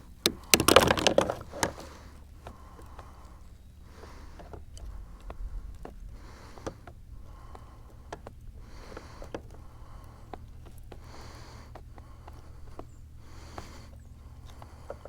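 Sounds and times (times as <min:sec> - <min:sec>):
handling clicks and knocks: 0:00.0 - 0:03.1.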